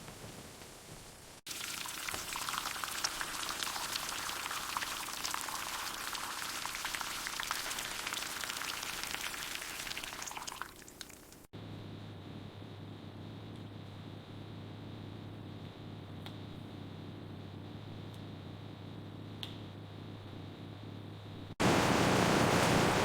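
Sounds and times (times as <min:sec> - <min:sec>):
food sizzling in hot oil: 0:01.5 - 0:11.5.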